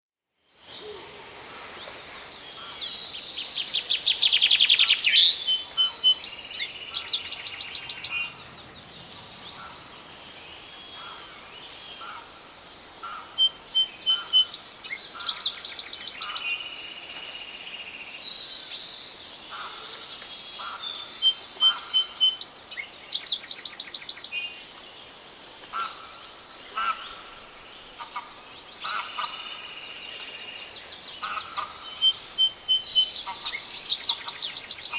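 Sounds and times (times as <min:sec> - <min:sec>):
songbirds chirping and trilling: 0:00.6 - 0:34.9.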